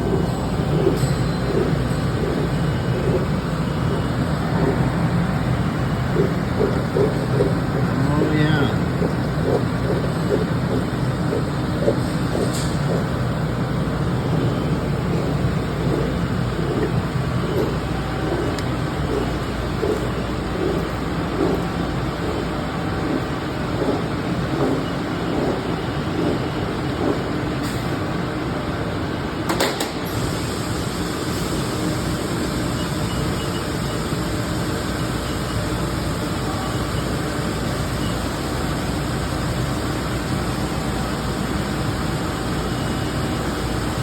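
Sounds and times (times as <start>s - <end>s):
lathe humming: 0.0s - 27.6s.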